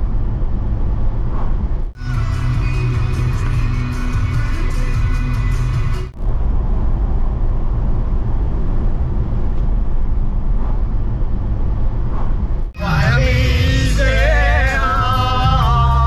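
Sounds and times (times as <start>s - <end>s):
loud low rumbling noise: 0.0s - 16.0s
background music: 2.0s - 6.2s, 12.8s - 16.0s.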